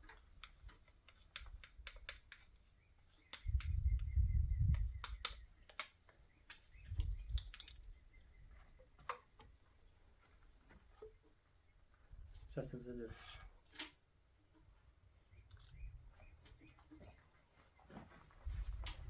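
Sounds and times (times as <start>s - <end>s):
sharp clicks and taps: 4.7s - 7.9s.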